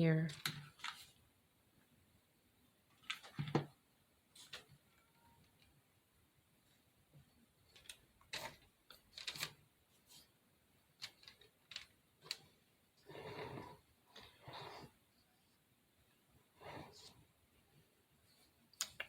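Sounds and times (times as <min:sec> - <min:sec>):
small clicks and taps: 0:18.7 - 0:19.0.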